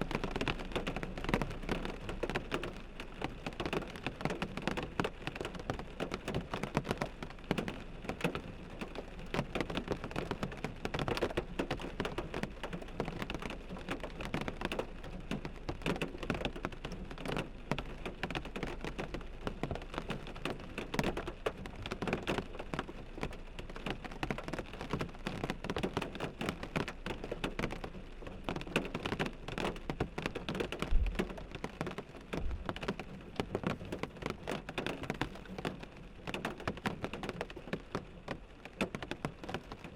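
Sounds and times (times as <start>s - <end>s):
rain pattering on windshield: 0.0s - 39.9s
low thump: 30.9s - 31.2s.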